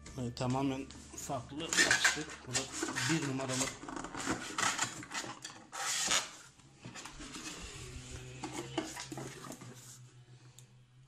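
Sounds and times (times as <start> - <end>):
cardboard scraping on cardboard: 1.7 - 6.4.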